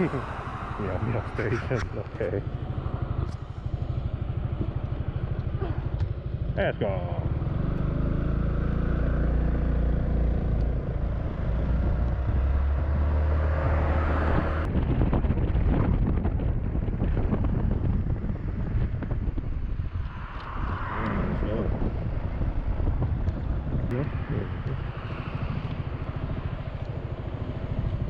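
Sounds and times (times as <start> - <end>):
scooter engine running: 1.3 - 13.3, 22.0 - 28.0
wind noise on microphone: 10.3 - 28.0.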